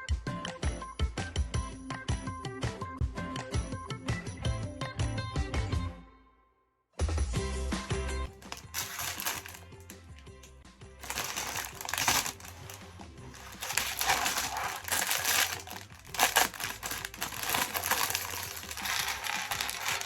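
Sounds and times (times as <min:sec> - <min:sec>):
plastic toy bricks rattling: 0:08.4 - 0:10.0, 0:11.0 - 0:20.0.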